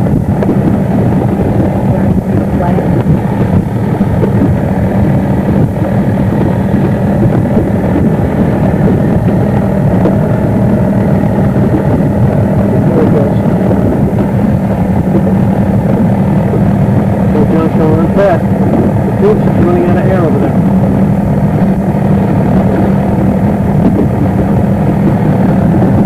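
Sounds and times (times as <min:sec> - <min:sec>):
motorboat engine running: 0:00.0 - 0:26.0.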